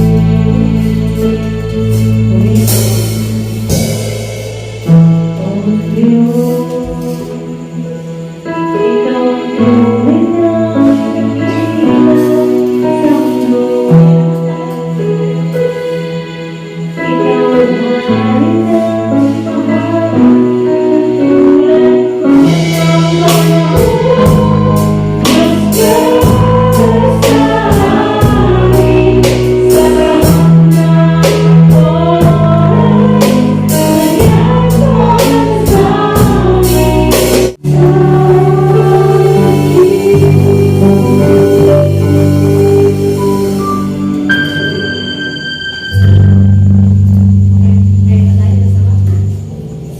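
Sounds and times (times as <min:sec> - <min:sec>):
drums: 0:00.0 - 0:08.1, 0:18.5 - 0:49.9
bass and chords: 0:00.0 - 0:09.0, 0:09.6 - 0:49.9
people singing: 0:05.4 - 0:08.0, 0:08.7 - 0:16.0, 0:17.0 - 0:45.1.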